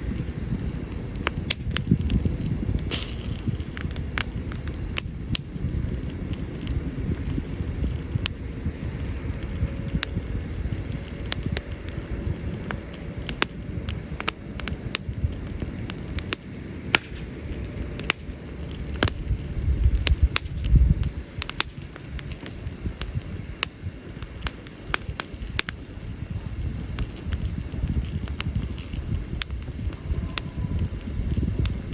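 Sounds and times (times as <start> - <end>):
campfire crackling: 0.0 - 31.9.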